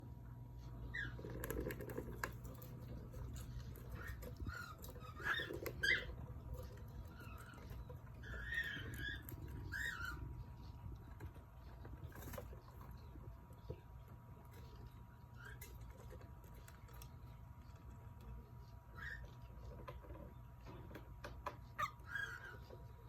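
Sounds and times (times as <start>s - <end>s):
cockatiel chirping: 0.9s - 1.9s, 3.4s - 11.0s, 15.3s - 15.9s, 18.9s - 19.5s, 21.4s - 22.9s.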